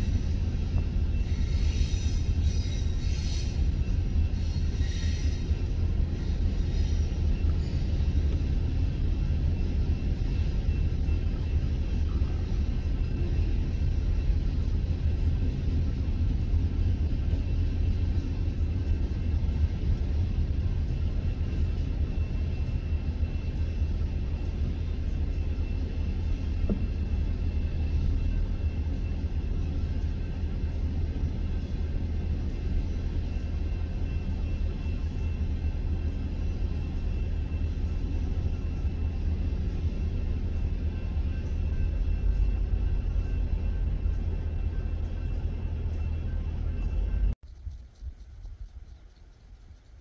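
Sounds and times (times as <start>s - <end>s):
freight train wheels rumbling: 0.0s - 50.0s.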